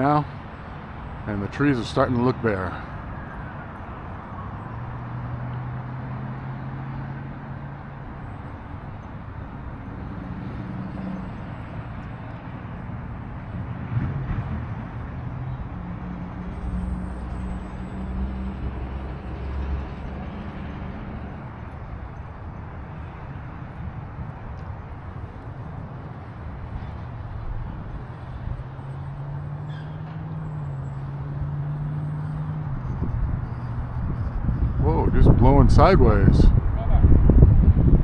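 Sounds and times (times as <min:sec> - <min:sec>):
distant engine hum: 0:00.0 - 0:38.0
gusty wind on microphone: 0:32.6 - 0:38.0.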